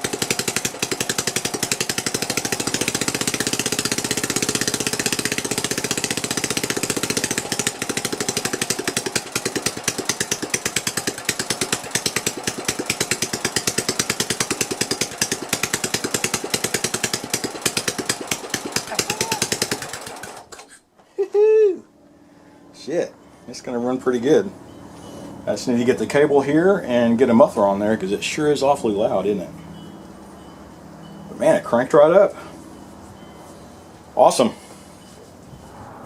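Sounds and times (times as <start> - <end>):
lawn tractor engine popping: 0.0 - 20.8.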